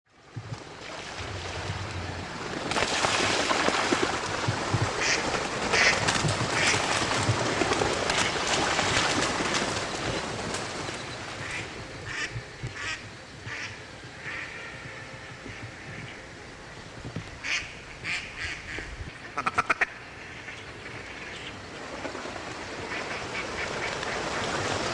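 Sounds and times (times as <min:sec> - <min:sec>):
ducks quacking: 0:05.0 - 0:08.5, 0:11.4 - 0:16.2, 0:17.4 - 0:21.6, 0:22.9 - 0:24.9.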